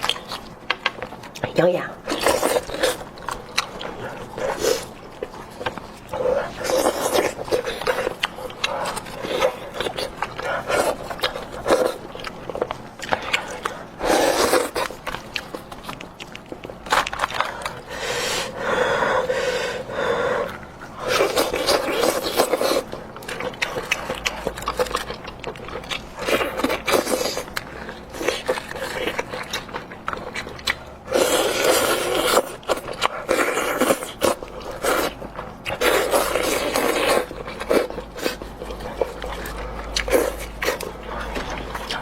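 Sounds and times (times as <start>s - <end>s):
person chewing and gnawing meat: 0.0s - 42.0s.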